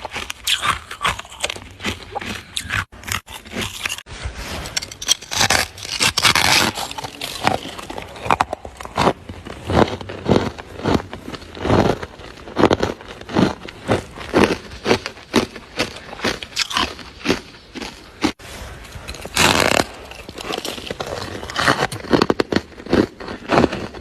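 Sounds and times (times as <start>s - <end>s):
frost being chewed: 0.0s - 4.1s, 4.8s - 24.0s.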